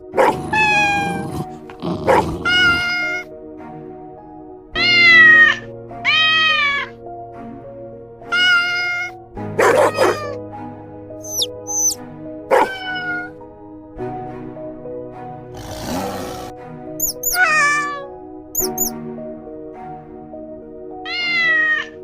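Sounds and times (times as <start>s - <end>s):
background music: 0.0s - 22.0s
cat meowing: 0.5s - 1.2s, 2.4s - 3.2s, 4.8s - 7.0s, 8.3s - 10.4s, 11.3s - 13.4s, 17.0s - 18.9s, 21.1s - 22.0s.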